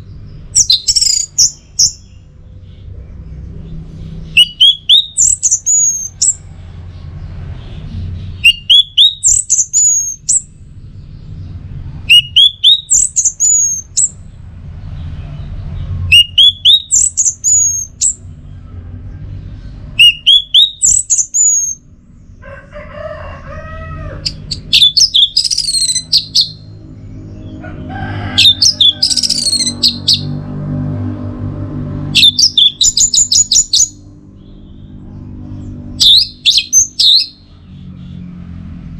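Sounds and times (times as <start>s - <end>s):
low steady rumble: 0.0s - 38.9s
thrush singing: 2.9s - 14.2s, 24.0s - 37.6s.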